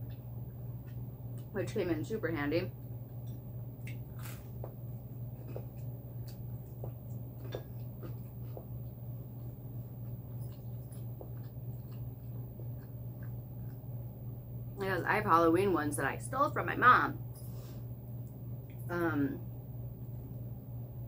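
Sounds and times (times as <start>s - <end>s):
chewing with mouth clicks: 0.0s - 1.6s, 2.8s - 14.4s
steady low hum: 0.0s - 21.0s.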